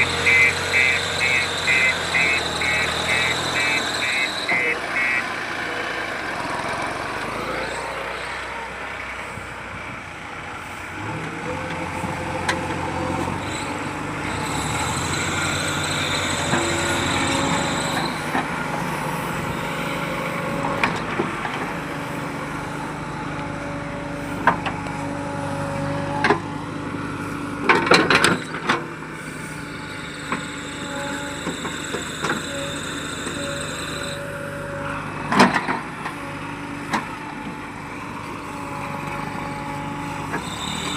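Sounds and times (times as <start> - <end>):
high steady whine: 0.0 - 5.8
diesel engine running: 0.0 - 40.9.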